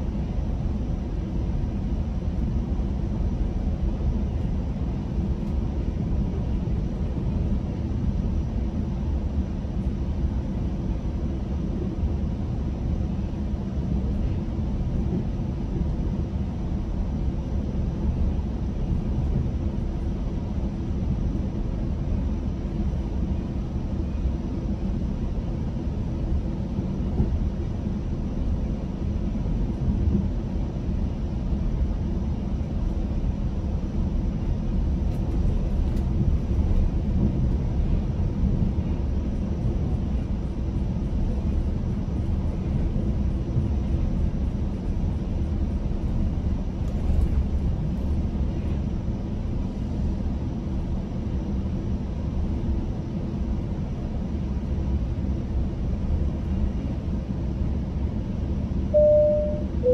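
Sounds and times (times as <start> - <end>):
faint constant hum: 0.0 - 59.9
train wheels rumbling on rails: 13.3 - 54.7.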